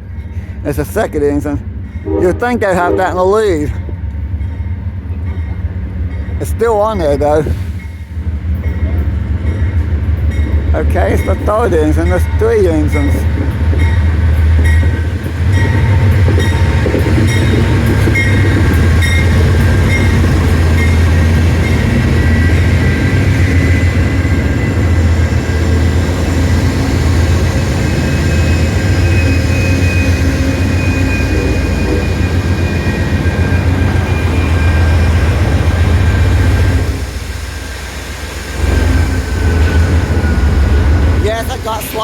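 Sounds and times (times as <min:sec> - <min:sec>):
train low rumble: 0:00.0 - 0:42.0
high-pitched wheel squeal: 0:27.5 - 0:36.6.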